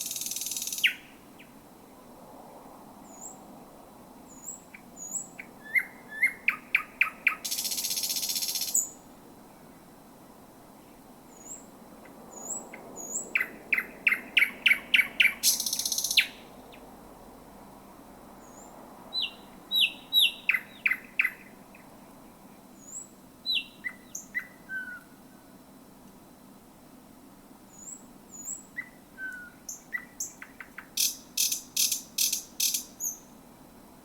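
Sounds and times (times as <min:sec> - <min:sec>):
nightingale singing: 0:00.0 - 0:01.6, 0:04.3 - 0:09.8, 0:10.8 - 0:16.9, 0:18.4 - 0:21.9, 0:22.6 - 0:25.4, 0:27.7 - 0:33.4.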